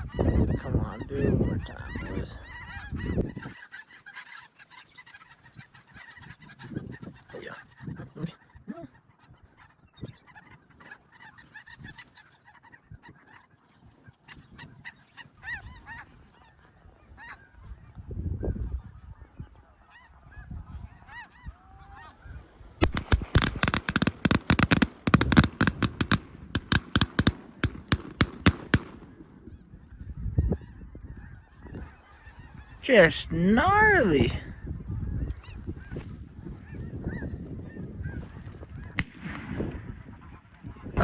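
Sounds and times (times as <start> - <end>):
geese honking: 0.0 - 18.0, 18.7 - 41.0
shotgun fire: 22.8 - 29.4, 39.0 - 40.0.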